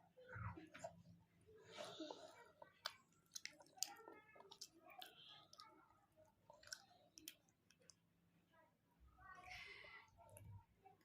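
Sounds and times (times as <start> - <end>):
person chewing: 1.8 - 8.0.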